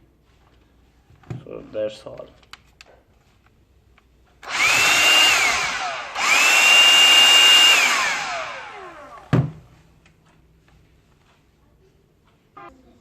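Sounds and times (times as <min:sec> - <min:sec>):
handheld vacuum motor whining: 0:04.4 - 0:09.3.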